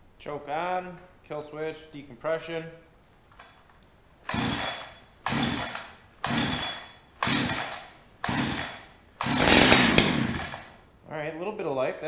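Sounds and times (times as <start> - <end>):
chainsaw engine briefly firing: 4.3 - 10.8
chainsaw recoil starter pulls: 4.3 - 10.8.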